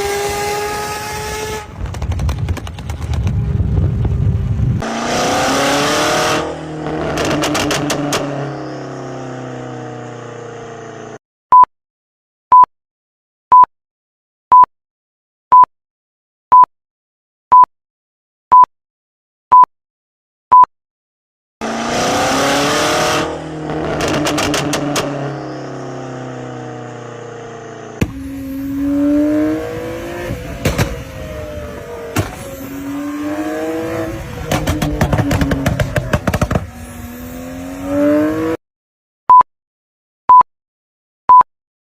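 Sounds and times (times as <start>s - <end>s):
car engine revving: 0.0s - 1.8s, 4.5s - 11.2s, 21.6s - 38.6s
different engine sound: 21.6s - 38.6s.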